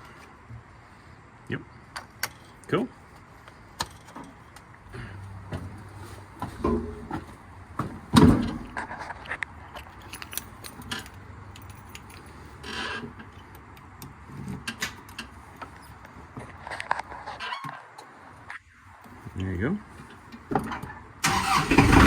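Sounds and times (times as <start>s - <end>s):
light metallic clinks and rattles: 8.6s - 16.1s.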